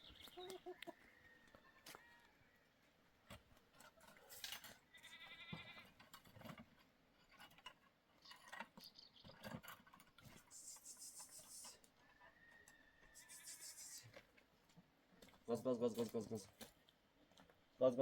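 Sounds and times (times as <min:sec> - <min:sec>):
goats bleating: 0:04.9 - 0:05.9.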